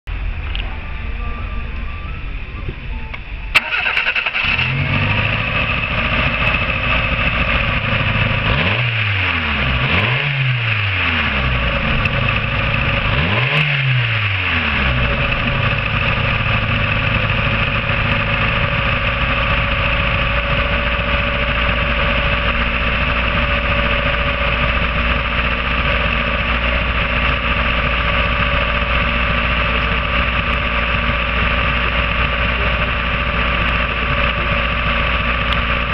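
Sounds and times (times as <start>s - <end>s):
car engine revving and idling: 0.1s - 35.9s.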